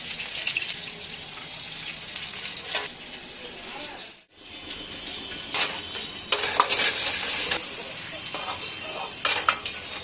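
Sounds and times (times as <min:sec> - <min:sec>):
food sizzling in a pan: 0:00.0 - 0:10.0
metal utensil clinking on pan: 0:05.5 - 0:07.6, 0:08.3 - 0:10.0.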